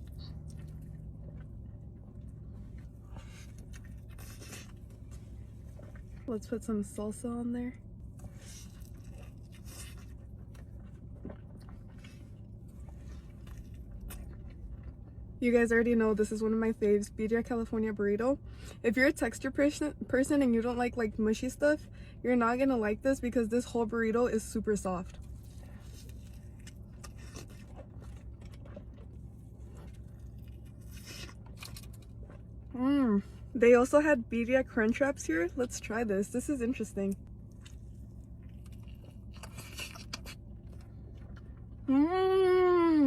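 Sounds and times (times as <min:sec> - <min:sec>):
wet chewing sounds: 0:00.0 - 0:07.0, 0:07.8 - 0:17.1, 0:23.9 - 0:41.9
low room hum: 0:00.0 - 0:43.0.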